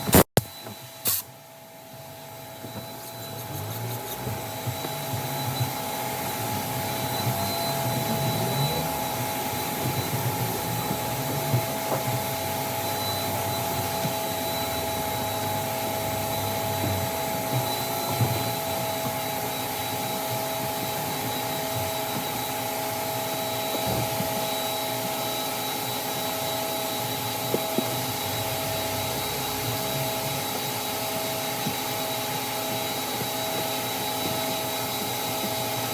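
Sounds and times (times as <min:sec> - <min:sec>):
vacuum cleaner running: 0:00.0 - 0:35.9.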